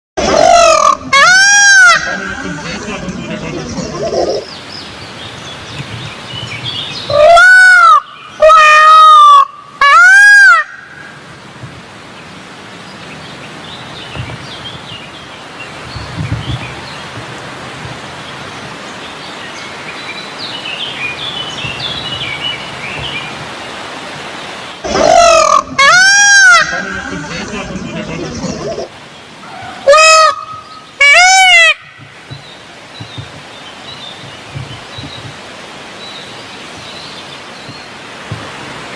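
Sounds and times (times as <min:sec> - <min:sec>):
peacock calling: 0:00.2 - 0:04.6, 0:06.4 - 0:11.3, 0:24.8 - 0:32.4
small birds chirping: 0:03.3 - 0:07.2, 0:11.4 - 0:24.8, 0:32.0 - 0:38.1.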